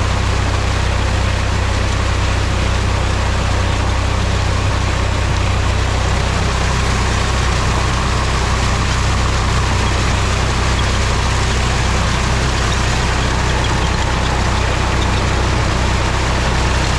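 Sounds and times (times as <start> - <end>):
tractor diesel engine running: 0.0 - 16.9.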